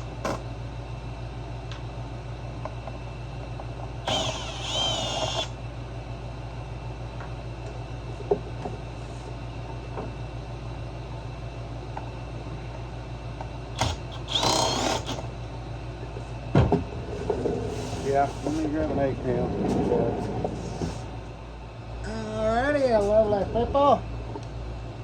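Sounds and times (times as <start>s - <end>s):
steady low hum: 0.0s - 25.0s
cordless drill spinning: 4.0s - 5.6s, 13.8s - 15.3s.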